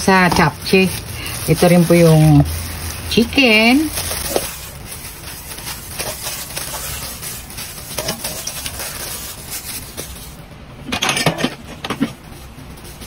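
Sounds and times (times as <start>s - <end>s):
food scraping in metal pot: 0.0s - 12.9s
clatter in pot: 5.8s - 10.2s, 10.8s - 12.2s.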